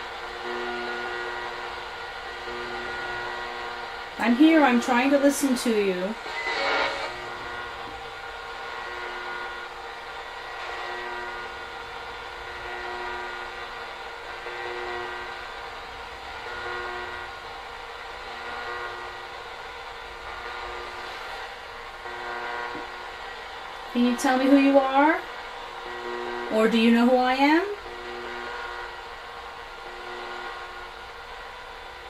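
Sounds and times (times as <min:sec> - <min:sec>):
radio static hiss: 0:00.0 - 0:32.0
steady radio tones: 0:04.2 - 0:08.0.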